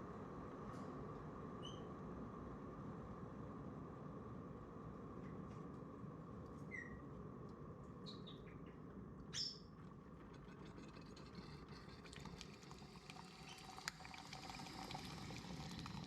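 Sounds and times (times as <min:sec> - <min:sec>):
low steady hum: 0:02.6 - 0:16.0
parrot chirp: 0:09.3 - 0:09.7
faint ticks and crackles: 0:09.8 - 0:16.0.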